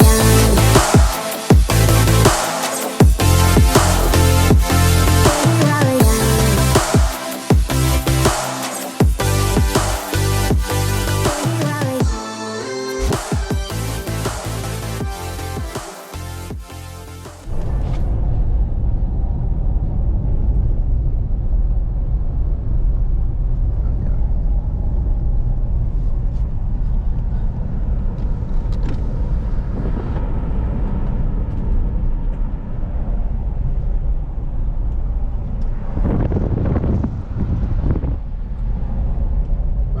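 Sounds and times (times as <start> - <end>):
vehicle rumbling in motion: 17.4 - 40.0.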